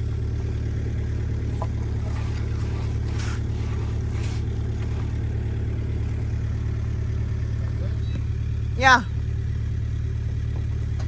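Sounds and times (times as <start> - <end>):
engine running steadily: 0.0 - 11.0
short hissing scraping noises: 1.7 - 5.3.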